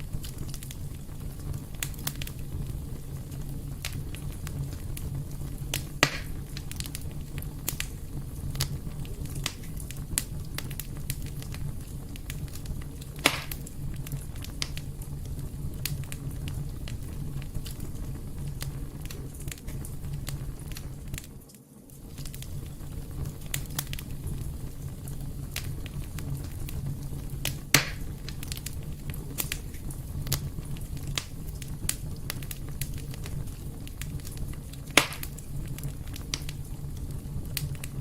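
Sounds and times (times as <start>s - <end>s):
fire pops: 0.0s - 38.0s
wood fire crackling: 0.0s - 38.0s.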